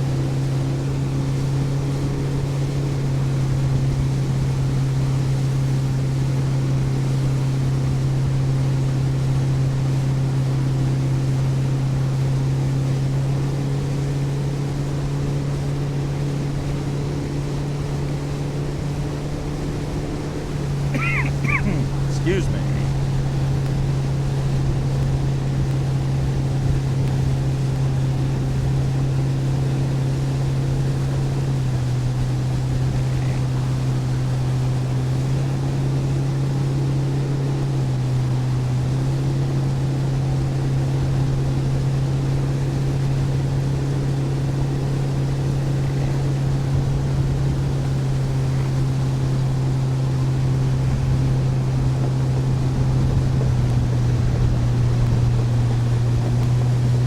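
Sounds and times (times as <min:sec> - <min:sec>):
boat motor droning: 0:00.0 - 0:57.0
wind: 0:00.0 - 0:57.0
water noise: 0:49.8 - 0:57.0.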